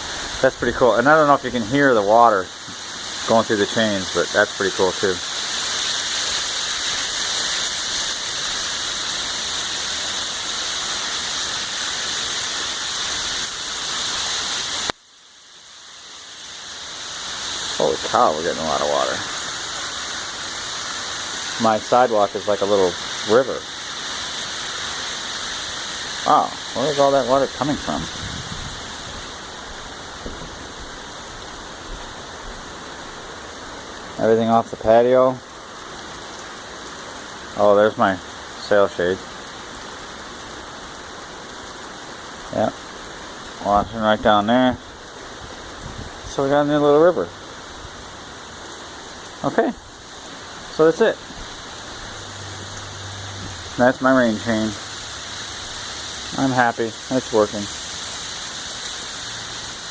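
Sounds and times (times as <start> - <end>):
heavy rain: 0.0 - 59.9
water rushing down rain chain: 0.0 - 59.9
faint drips: 50.1 - 59.8.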